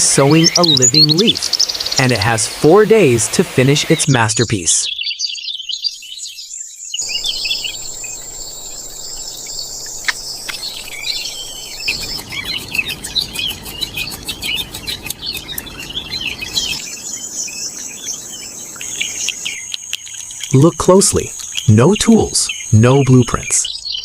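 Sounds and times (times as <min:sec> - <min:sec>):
small birds chirping: 0:00.0 - 0:24.0
fast insect ticks: 0:00.3 - 0:02.1, 0:07.0 - 0:16.8, 0:18.8 - 0:22.8
high insect trill: 0:07.0 - 0:24.0.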